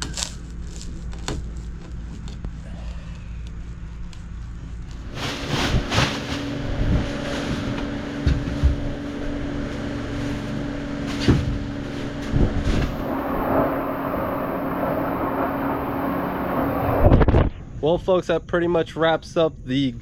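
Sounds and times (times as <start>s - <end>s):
motor humming: 2.3s - 17.3s.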